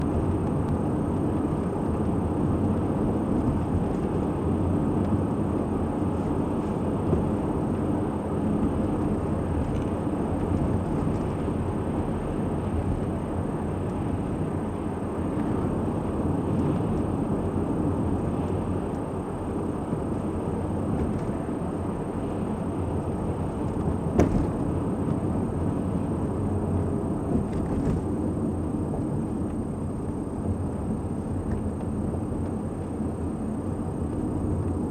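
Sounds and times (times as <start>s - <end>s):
car road and engine noise: 0.0s - 34.9s.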